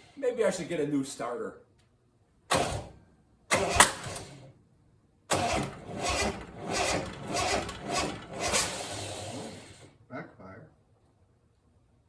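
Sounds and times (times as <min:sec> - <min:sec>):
starter motor cranking engine: 0:02.5 - 0:04.5, 0:05.3 - 0:10.0.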